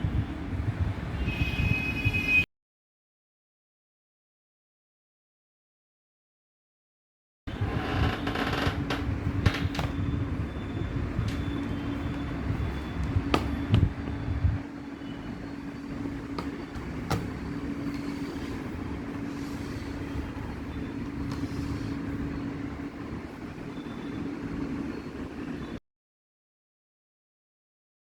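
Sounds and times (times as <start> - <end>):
rumbling background noise: 7.5 - 25.8
steady low hum: 7.5 - 25.8.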